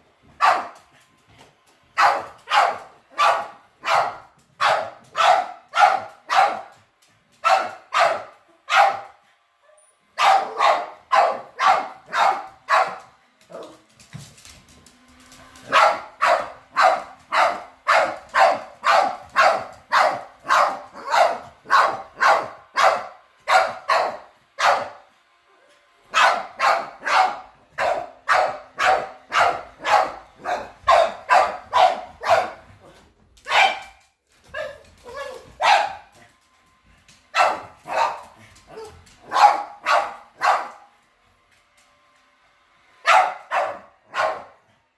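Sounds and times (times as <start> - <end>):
dog barking: 0.4 - 0.8, 2.0 - 6.8, 7.4 - 9.2, 10.2 - 13.7, 15.7 - 25.0, 26.1 - 32.7, 33.5 - 36.1, 37.3 - 40.9, 43.0 - 44.6.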